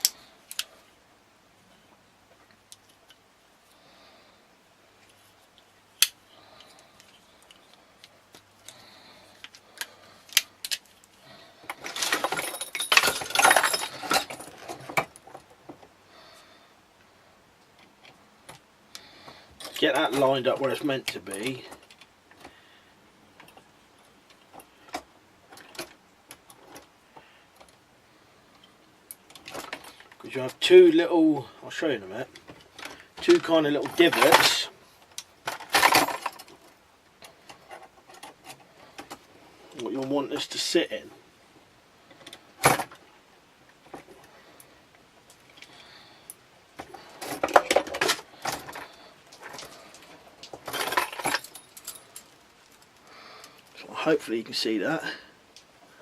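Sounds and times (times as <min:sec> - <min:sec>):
metal trap clinking and rattling: 0:11.8 - 0:14.8, 0:50.6 - 0:53.8.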